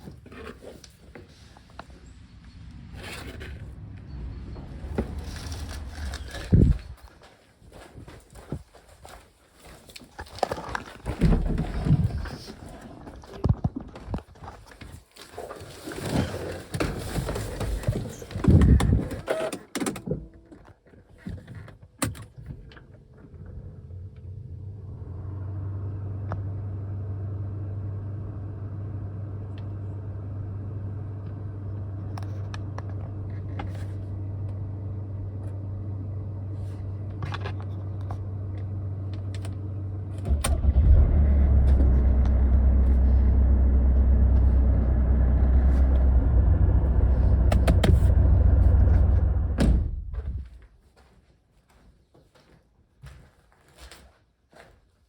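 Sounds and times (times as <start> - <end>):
car engine humming: 2.0 - 7.0, 23.1 - 50.2
knocks and clatter: 10.7 - 14.4, 44.1 - 50.6.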